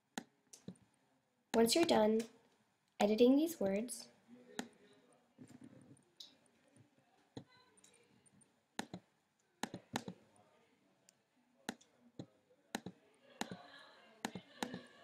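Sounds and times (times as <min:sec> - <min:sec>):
computer mouse and keyboard clicks: 0:07.8 - 0:09.0, 0:09.6 - 0:10.2, 0:12.8 - 0:13.6, 0:14.2 - 0:14.8.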